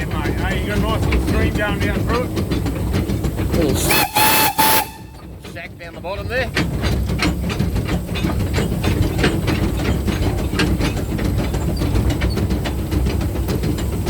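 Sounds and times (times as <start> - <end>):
clattering train wheels: 0.0 - 14.0
train rumble: 0.0 - 14.0
steam hissing: 3.4 - 5.2.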